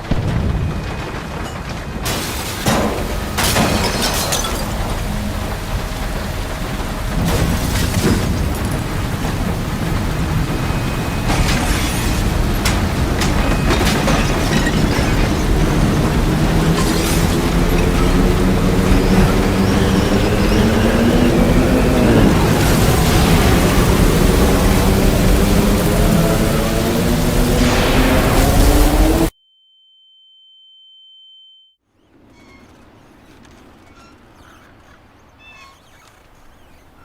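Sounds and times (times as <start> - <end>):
debris cracking and crashing: 0.0 - 29.3
tornado roar: 0.0 - 29.3.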